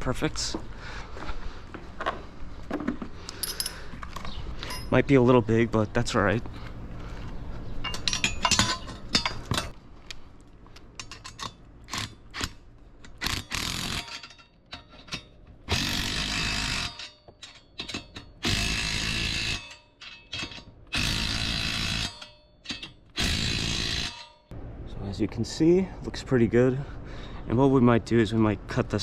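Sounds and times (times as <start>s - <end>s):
metal clicks and clanks: 7.8s - 9.8s, 10.8s - 24.5s.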